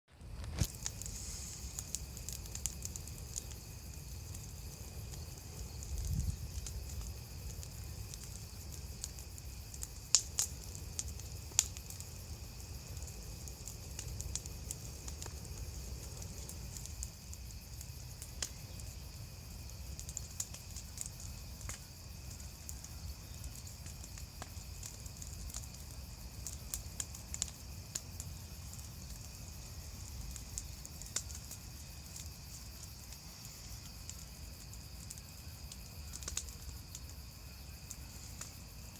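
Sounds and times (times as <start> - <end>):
bonfire crackling: 0.1 - 38.9
wood snapping and popping: 0.4 - 3.6.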